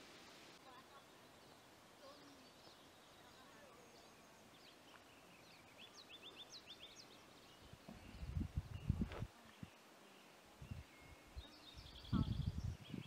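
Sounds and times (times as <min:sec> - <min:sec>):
songbird chirping: 0:00.0 - 0:13.0.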